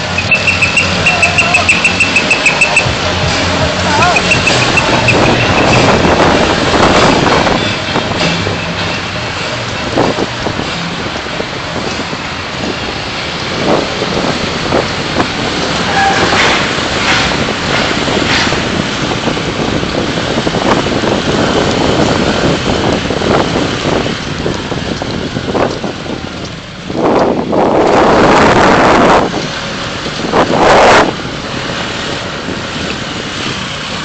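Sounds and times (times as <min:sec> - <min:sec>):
road and wind noise: 0:00.0 - 0:34.0
wind buffeting microphone: 0:00.0 - 0:34.0
brief tone: 0:00.2 - 0:03.0.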